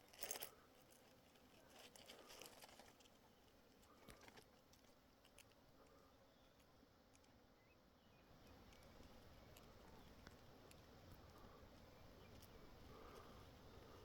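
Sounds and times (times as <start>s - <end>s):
faint rustles and clicks: 0.0s - 7.4s.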